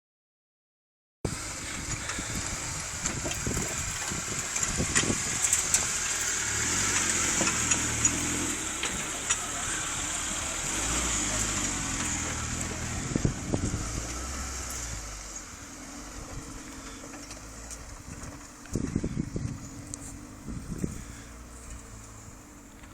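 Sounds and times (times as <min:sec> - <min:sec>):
vehicle engine running: 0:01.3 - 0:22.9
knocks and rattles from bumps: 0:01.9 - 0:09.7.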